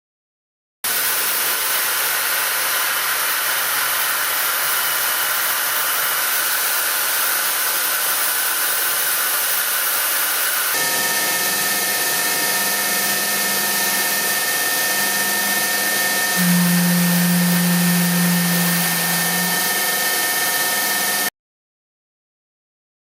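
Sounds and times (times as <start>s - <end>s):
machine hissing: 16.3s - 20.3s.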